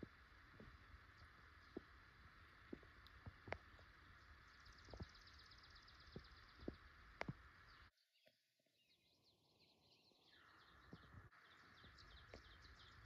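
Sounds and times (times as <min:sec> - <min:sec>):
steady hiss: 0:00.0 - 0:07.9.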